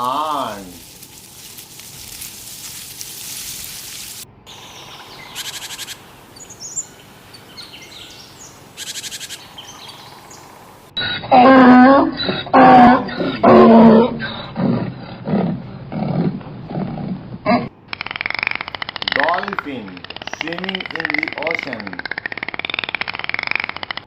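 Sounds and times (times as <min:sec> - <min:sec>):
faint hiss: 0:00.0 - 0:09.5
birds chirping: 0:00.0 - 0:23.8
loud animal roar: 0:11.0 - 0:22.6.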